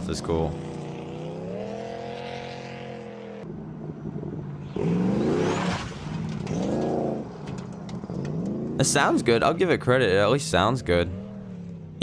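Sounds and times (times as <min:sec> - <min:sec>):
car engine revving through exhaust: 0:00.5 - 0:03.5.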